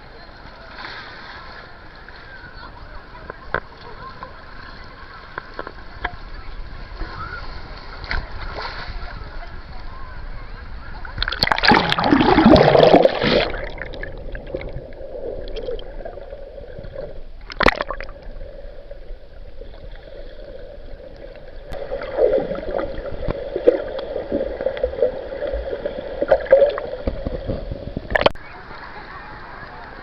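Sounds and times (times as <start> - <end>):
water sloshing and gurgling: 10.8 - 28.4.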